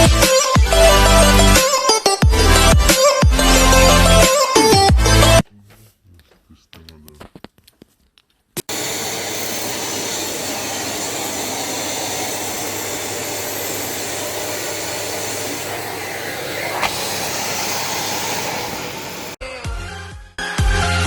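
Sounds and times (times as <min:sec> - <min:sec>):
vacuum cleaner running: 0:08.7 - 0:19.4.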